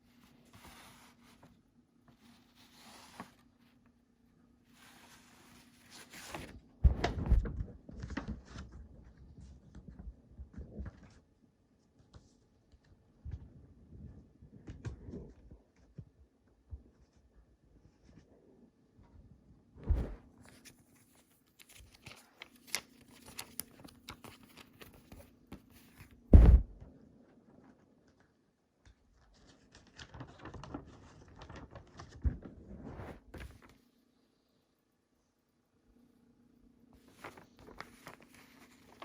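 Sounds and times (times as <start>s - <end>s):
packaging rustling: 21.0s - 26.7s
sharp knock: 26.4s - 26.7s.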